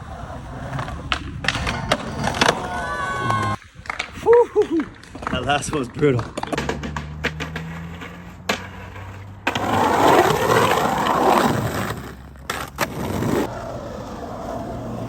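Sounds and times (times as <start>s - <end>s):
skateboard wheels rolling: 0.0s - 15.0s
skateboard clacks: 0.2s - 15.0s.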